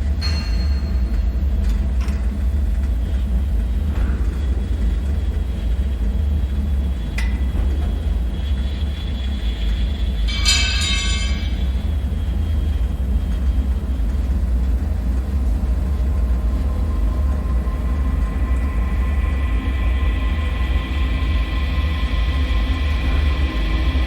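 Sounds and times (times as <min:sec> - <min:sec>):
faint high ringing tones: 0:00.2 - 0:01.7, 0:09.2 - 0:12.3.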